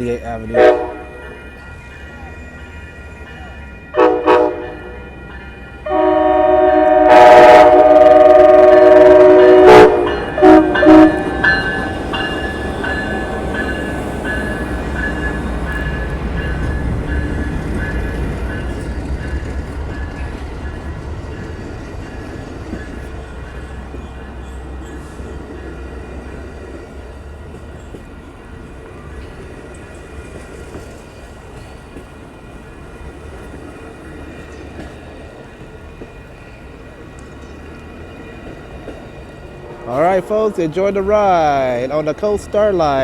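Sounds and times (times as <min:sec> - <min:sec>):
passing train rumble: 0:00.0 - 0:43.0
train horn blasts: 0:00.6 - 0:01.3, 0:03.9 - 0:05.1, 0:05.8 - 0:12.0.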